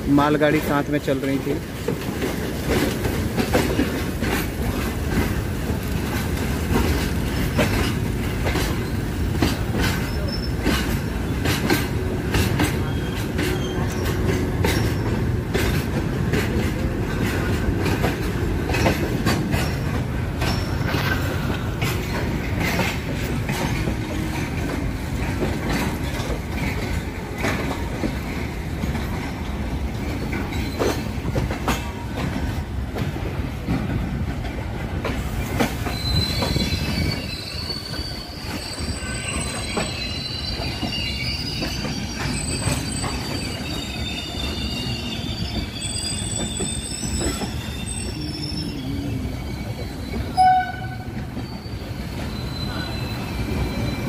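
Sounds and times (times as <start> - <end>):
train wheels rumbling and rattling: 0.0 - 54.0
high-pitched wheel squeal: 35.8 - 54.0.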